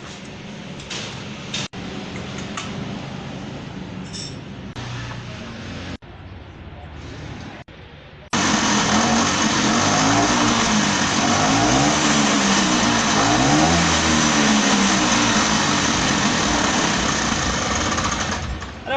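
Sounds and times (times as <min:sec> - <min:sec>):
scooter engine revving: 0:08.3 - 0:18.9.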